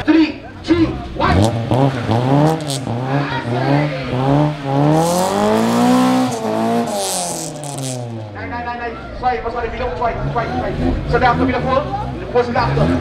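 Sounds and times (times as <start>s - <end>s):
car engine revving: 0.0s - 13.0s
spinning tyres hissing: 0.5s - 8.8s.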